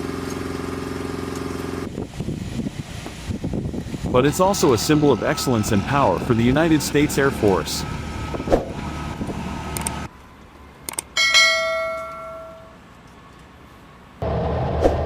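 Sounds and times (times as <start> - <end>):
steady rumble: 1.8 - 10.1, 14.2 - 15.0
bell-like metallic strike: 11.2 - 12.8.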